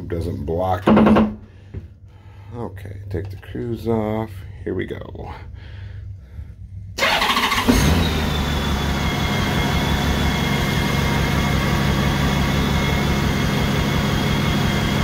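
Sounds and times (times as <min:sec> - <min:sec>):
starter motor cranking: 0:07.0 - 0:09.1.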